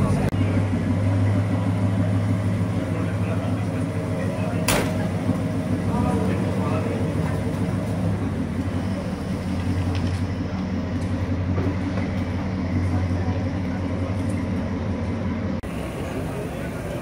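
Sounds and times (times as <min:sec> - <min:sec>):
car engine idling rough rumble: 0:00.0 - 0:17.0.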